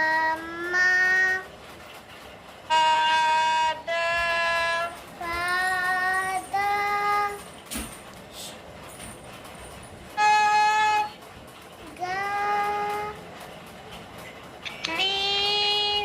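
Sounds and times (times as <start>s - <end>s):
child singing held notes: 0.0s - 1.5s, 2.7s - 7.5s, 11.8s - 13.4s, 14.8s - 16.0s.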